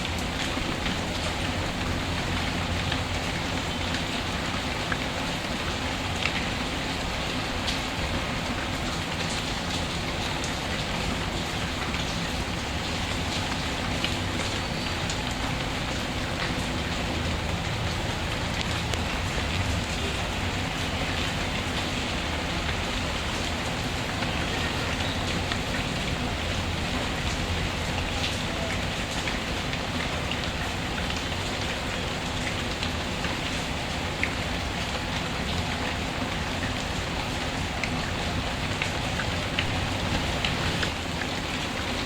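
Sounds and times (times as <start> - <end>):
steady rain: 0.0 - 42.0.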